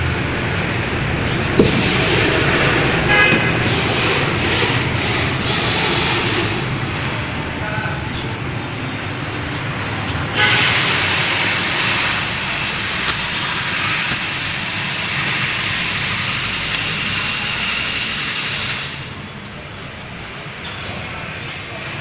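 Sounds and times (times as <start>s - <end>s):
loud steady hiss: 0.0s - 7.4s, 10.4s - 19.2s.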